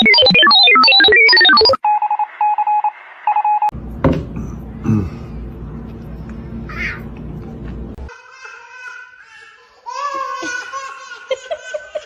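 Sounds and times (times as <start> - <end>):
electronic keypad beeps: 0.0 - 3.7
phone-style beep: 0.0 - 3.7.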